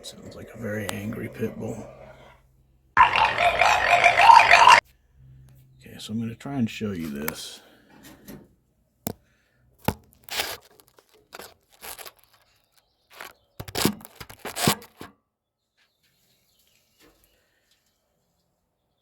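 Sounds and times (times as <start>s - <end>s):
rustling and scraping: 9.9s - 15.1s
tools and parts handled: 9.9s - 15.1s.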